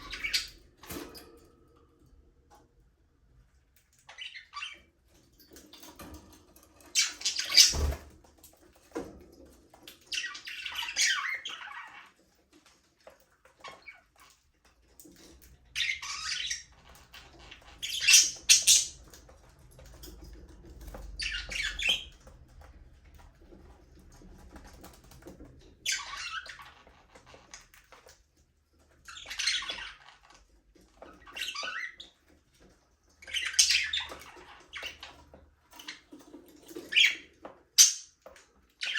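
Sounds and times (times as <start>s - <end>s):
budgerigars chirping and squawking: 0.0s - 0.6s, 4.0s - 4.9s, 6.8s - 8.0s, 9.9s - 12.2s, 15.7s - 19.2s, 20.8s - 22.2s, 25.8s - 27.6s, 29.0s - 30.3s, 31.0s - 32.2s, 33.2s - 36.1s, 36.7s - 38.2s.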